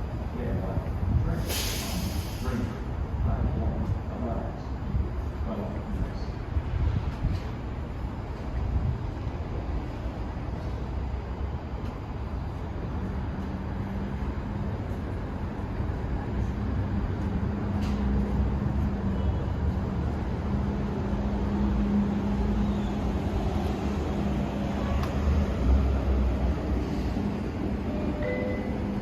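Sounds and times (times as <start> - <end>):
train rumbling: 0.0 - 29.0.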